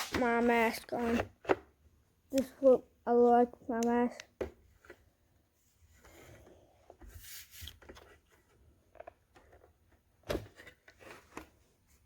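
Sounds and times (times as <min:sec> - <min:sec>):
handling rubbing and rustling: 0:04.7 - 0:12.0.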